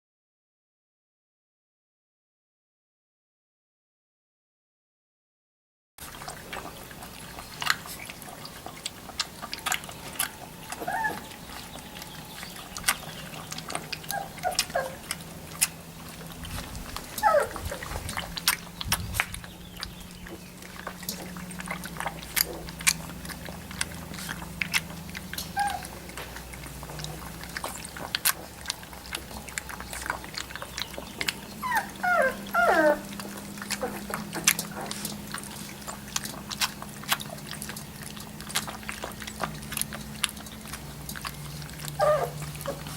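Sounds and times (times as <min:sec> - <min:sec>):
small clicks and rustles: 0:06.0 - 0:42.9
steady low hum: 0:06.0 - 0:42.9
puppies squeaking and whimpering: 0:06.2 - 0:42.9.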